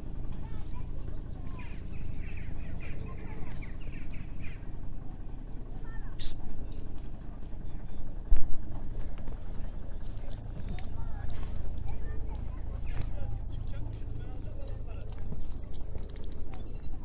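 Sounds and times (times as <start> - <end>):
small birds chirping: 0.5 - 8.1, 8.8 - 17.0
short hissy burst: 6.2 - 6.4.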